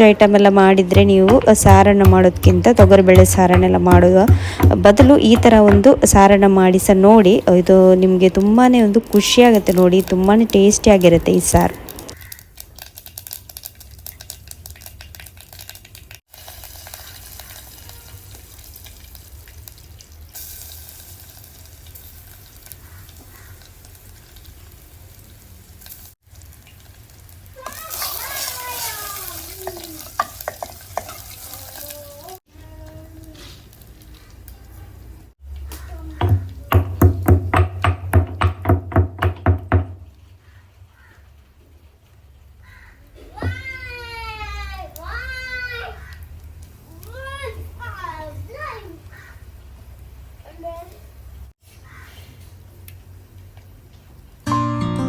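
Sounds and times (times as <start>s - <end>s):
hot oil sizzling in a pan: 12.0s - 36.0s, 43.5s - 54.2s.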